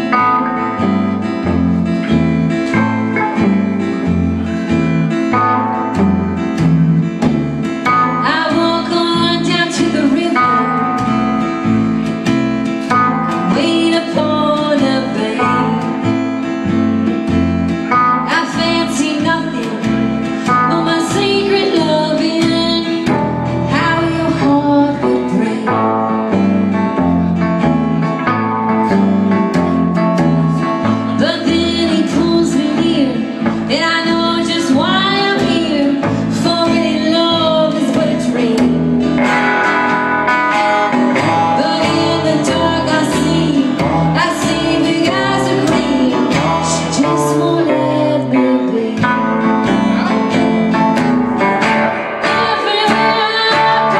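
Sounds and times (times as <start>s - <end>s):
low picked bass notes: 0.0s - 53.9s
plucked acoustic guitar: 0.0s - 53.9s
woman singing: 7.8s - 11.7s, 13.0s - 16.5s, 18.1s - 27.0s, 29.5s - 50.4s, 51.6s - 53.9s.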